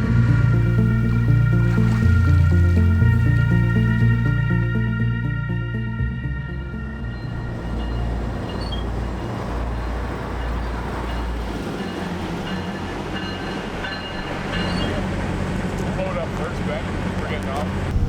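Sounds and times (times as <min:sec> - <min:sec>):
train rumbling and rattling: 0:00.0 - 0:04.6, 0:07.1 - 0:18.0
high wheel squeals: 0:07.1 - 0:15.6.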